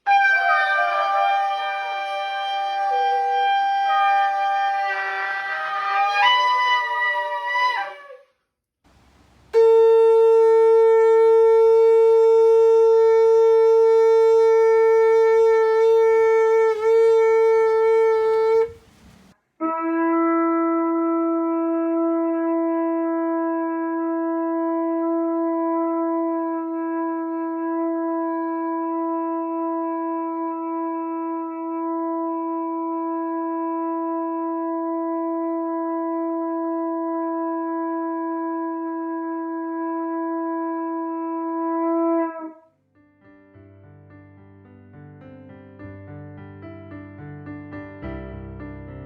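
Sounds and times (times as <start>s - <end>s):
ram's horn trumpet blasts: 0.1s - 8.2s, 9.5s - 20.6s.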